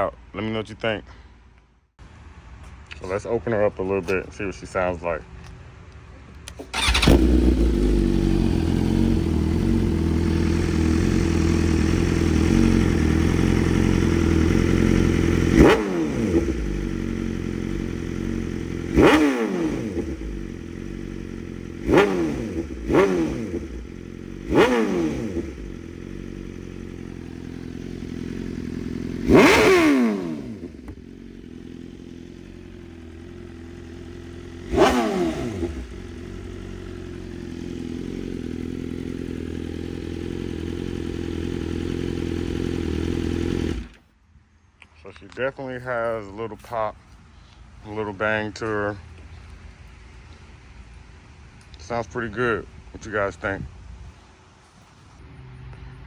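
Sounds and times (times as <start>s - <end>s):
motorcycle engine revving: 6.5s - 44.2s.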